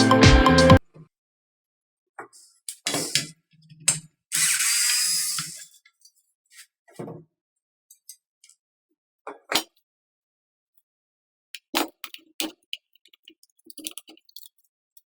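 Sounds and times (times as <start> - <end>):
hiss-like scraping: 4.4 - 5.7.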